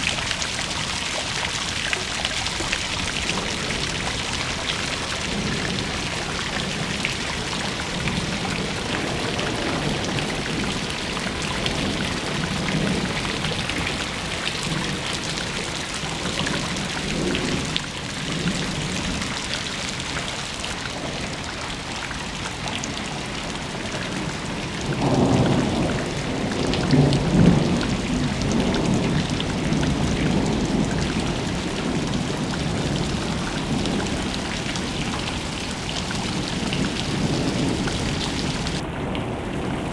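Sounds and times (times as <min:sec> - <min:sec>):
steady rain falling: 0:00.0 - 0:39.9
low roll of thunder: 0:24.0 - 0:39.9.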